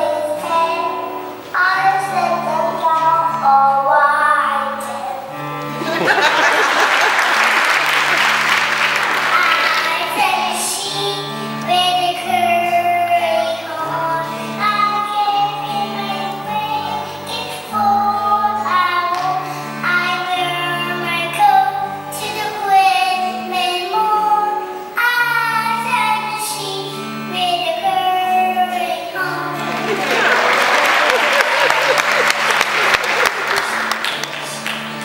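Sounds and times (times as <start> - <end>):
child singing: 0.0 - 5.4, 9.3 - 30.3.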